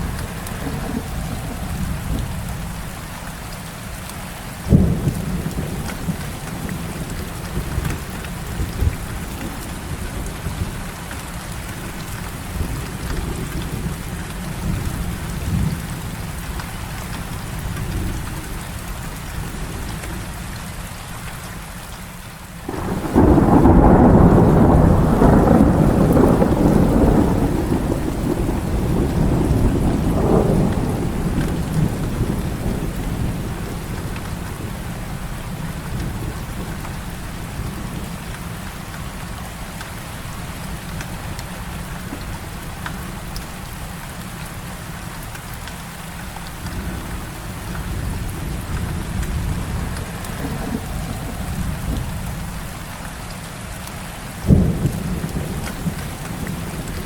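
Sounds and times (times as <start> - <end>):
thunder rumbling: 0.0 - 3.1, 4.7 - 16.6, 22.6 - 38.6, 46.5 - 52.9, 54.4 - 57.0
heavy rain falling: 0.0 - 57.0.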